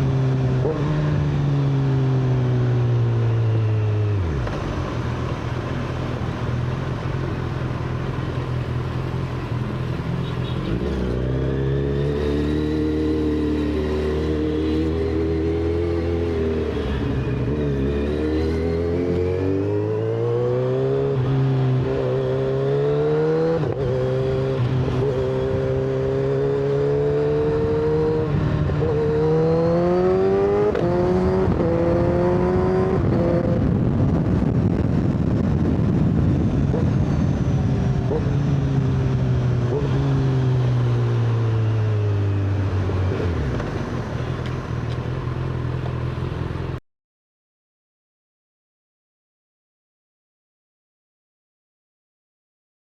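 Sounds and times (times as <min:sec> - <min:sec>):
motorcycle engine accelerating: 0:00.0 - 0:46.8
rushing wind noise: 0:27.4 - 0:40.8.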